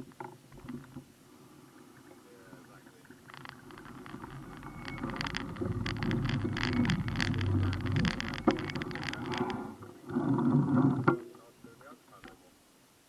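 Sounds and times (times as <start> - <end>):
bicycle clicks and rattles: 3.3 - 9.6.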